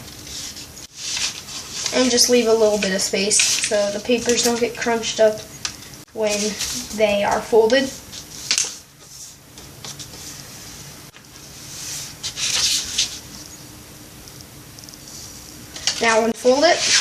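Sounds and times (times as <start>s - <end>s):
paper rustling and creasing: 0.0s - 4.7s, 6.2s - 10.5s, 11.4s - 13.4s, 15.0s - 17.0s.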